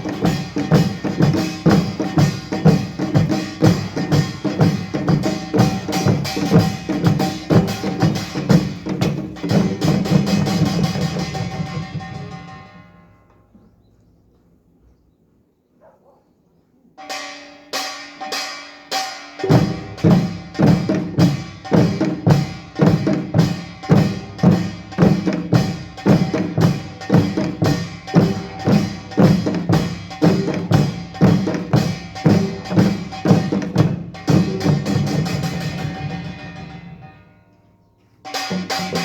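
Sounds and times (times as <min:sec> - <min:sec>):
deep drum strokes: 0:00.0 - 0:12.8, 0:19.4 - 0:37.1
sharp bright percussion strikes: 0:17.1 - 0:37.2, 0:38.3 - 0:39.0.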